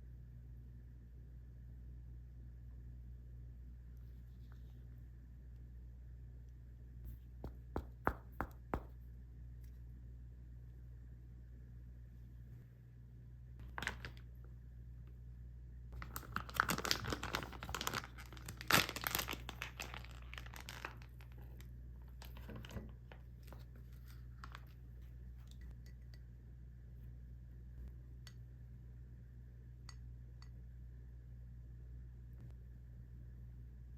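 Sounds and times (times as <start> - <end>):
plastic packaging crinkling: 13.6 - 14.3, 16.0 - 24.8.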